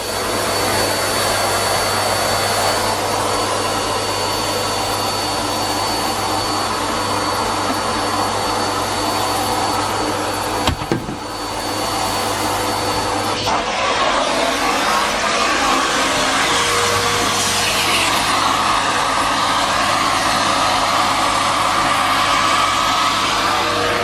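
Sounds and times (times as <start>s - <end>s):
vacuum cleaner running: 0.0s - 24.0s
sharp knock: 10.6s - 11.4s.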